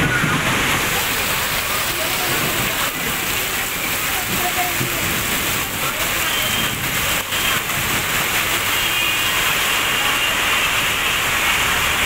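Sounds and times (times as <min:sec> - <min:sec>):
heavy rain hissing on road: 0:00.0 - 0:12.0
vehicles driving through water: 0:00.0 - 0:12.0.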